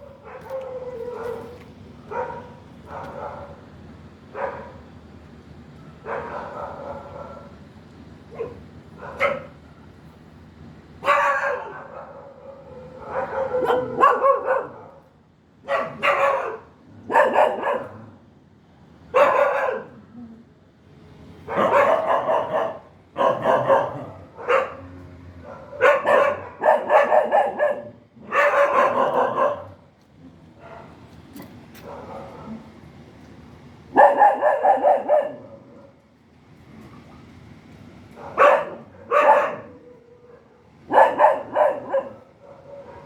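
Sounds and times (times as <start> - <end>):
dog barking: 0.0 - 3.6, 4.3 - 4.8, 6.0 - 7.5, 8.3 - 9.6, 11.0 - 15.0, 15.7 - 18.0, 19.1 - 20.0, 21.5 - 29.8, 30.6 - 30.9, 31.8 - 32.6, 33.9 - 35.7, 38.2 - 43.0.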